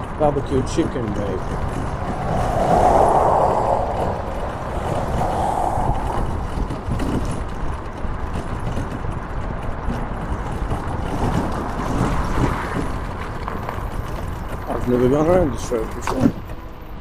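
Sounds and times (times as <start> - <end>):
wind buffeting microphone: 0.0 - 8.3
road travel rumble: 0.0 - 15.0.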